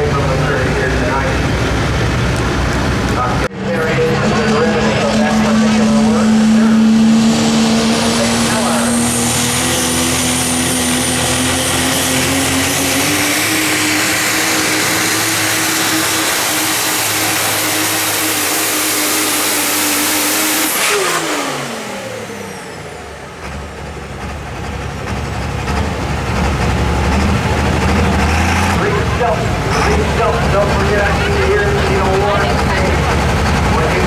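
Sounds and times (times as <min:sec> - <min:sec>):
engine idle rumble: 0:00.0 - 0:12.3, 0:22.2 - 0:34.0
diesel truck engine under load: 0:00.0 - 0:34.0
turbocharger whistle: 0:26.8 - 0:34.0.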